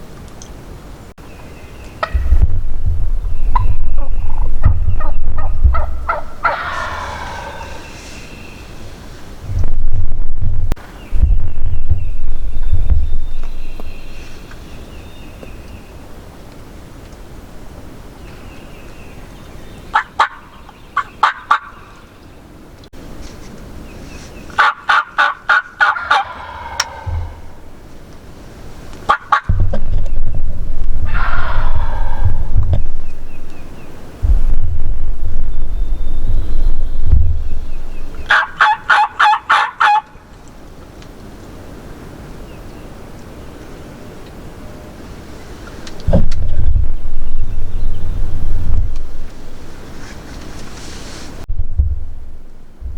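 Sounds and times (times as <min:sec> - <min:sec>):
low rumble: 0:01.9 - 0:16.3, 0:26.1 - 0:28.1, 0:29.5 - 0:38.3, 0:46.0 - 0:50.0, 0:51.4 - 0:52.9
turkey gobbling: 0:02.0 - 0:02.4, 0:03.3 - 0:08.2, 0:19.9 - 0:21.8, 0:24.6 - 0:27.8, 0:29.1 - 0:29.5, 0:31.0 - 0:32.5, 0:38.1 - 0:40.2.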